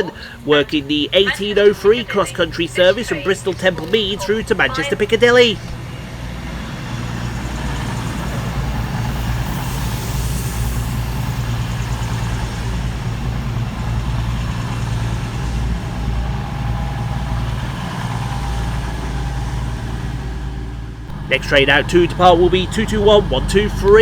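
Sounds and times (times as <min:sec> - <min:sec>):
train diesel engines droning: 0:00.0 - 0:24.0.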